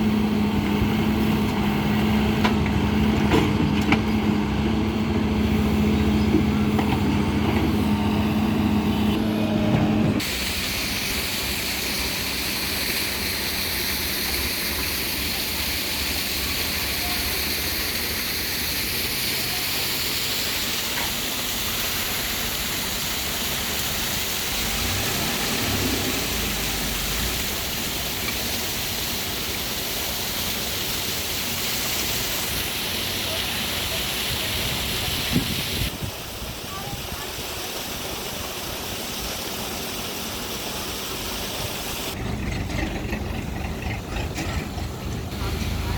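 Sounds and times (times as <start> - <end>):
diesel engine running: 0.0 - 36.6, 40.2 - 45.9
steady hiss: 10.2 - 42.2.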